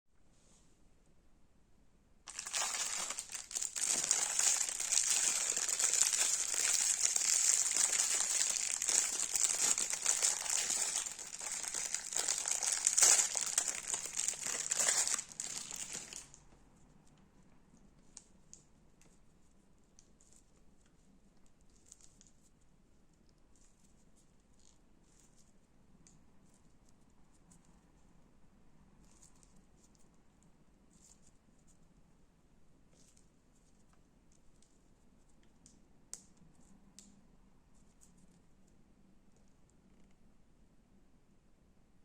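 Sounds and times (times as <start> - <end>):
crunchy slime being kneaded: 2.3 - 16.4
faint squishes: 2.3 - 16.5.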